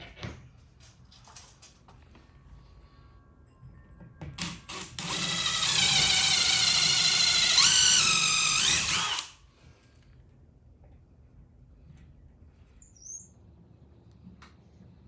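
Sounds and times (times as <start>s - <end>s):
electric drill whining: 4.4s - 9.4s.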